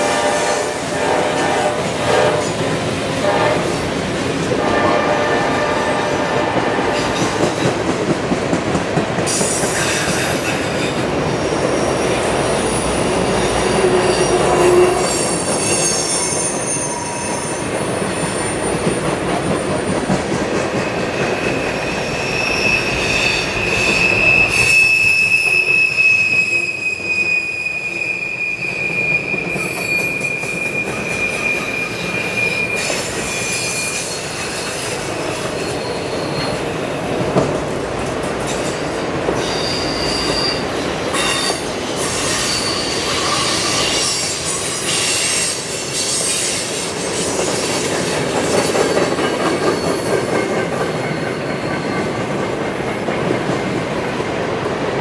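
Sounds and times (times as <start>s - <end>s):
train wheels rumbling on rails: 0.0s - 55.0s
wheel flanges squealing: 20.9s - 34.9s, 39.4s - 46.6s.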